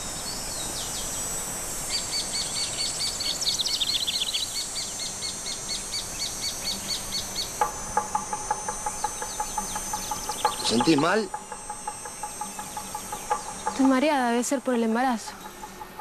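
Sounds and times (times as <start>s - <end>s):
bird high repeated chirps: 6.9s - 16.0s
bird lower repeated call: 7.5s - 16.0s.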